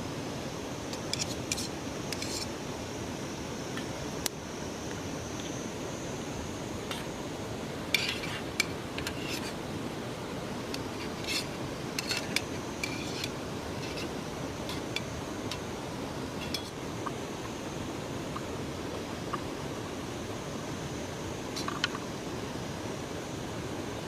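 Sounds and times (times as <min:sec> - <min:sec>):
steady rushing hiss: 0:00.0 - 0:24.0.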